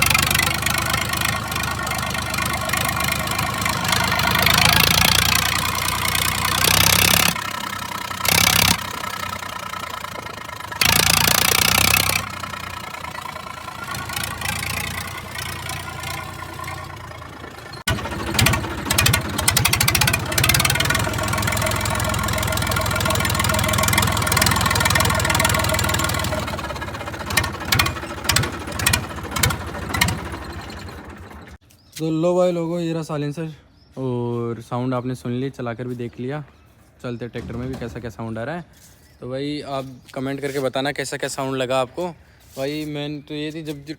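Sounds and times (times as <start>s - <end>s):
loud diesel tractor engine: 0.0s - 31.6s.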